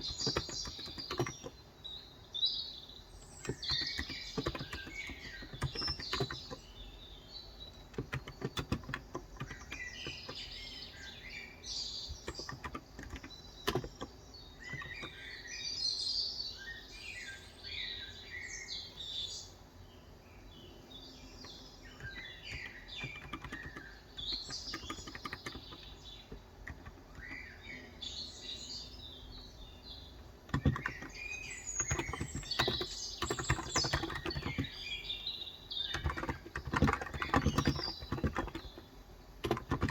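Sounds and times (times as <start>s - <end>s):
keyboard typing: 0.0s - 1.6s, 3.3s - 6.7s, 7.6s - 10.8s, 11.9s - 15.3s, 21.4s - 27.6s, 30.4s - 35.0s, 35.7s - 39.9s
birds chirping: 0.0s - 39.9s.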